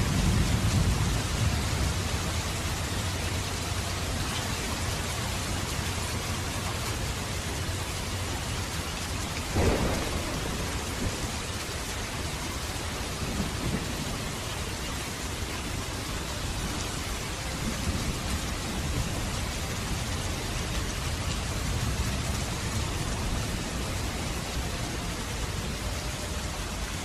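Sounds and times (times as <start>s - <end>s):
steady rain: 0.0s - 27.0s
loud thunder clap: 9.5s - 11.6s.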